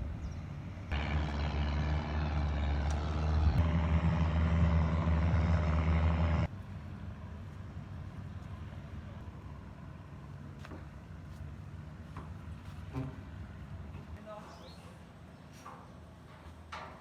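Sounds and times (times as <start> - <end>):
low rumble: 0.0 - 6.5
engine humming: 0.0 - 14.2.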